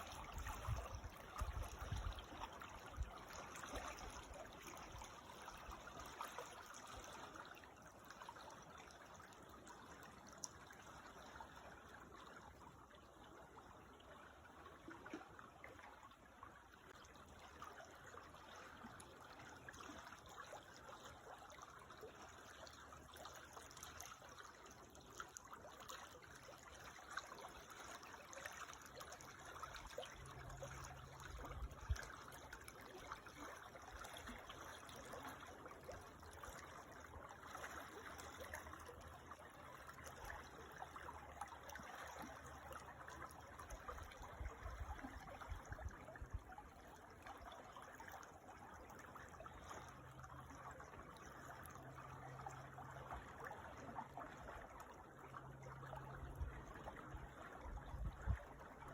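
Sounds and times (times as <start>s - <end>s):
creek trickling: 0.0s - 58.9s.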